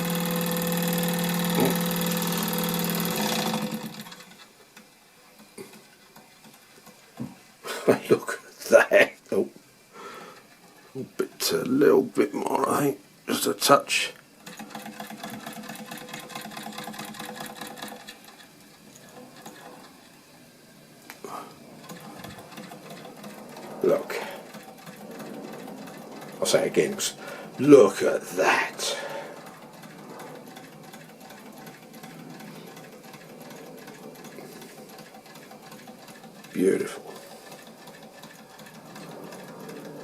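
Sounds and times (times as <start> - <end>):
steam engine rapid ticking: 0.0 - 4.4, 14.4 - 18.4, 21.8 - 40.0
steam engine hum: 0.0 - 8.8, 9.7 - 40.0.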